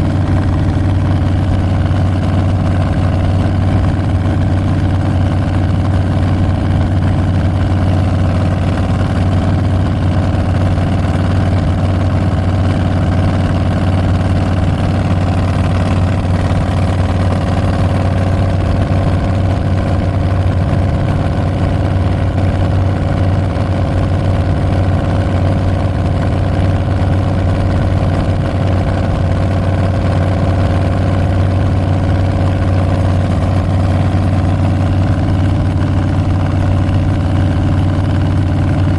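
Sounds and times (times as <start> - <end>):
motorcycle exhaust rumbling: 0.0 - 38.9.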